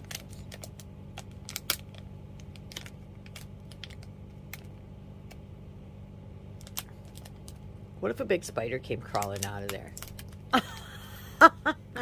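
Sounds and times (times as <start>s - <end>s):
plastic packaging clicking: 0.0s - 5.4s, 6.6s - 7.6s, 9.1s - 10.6s.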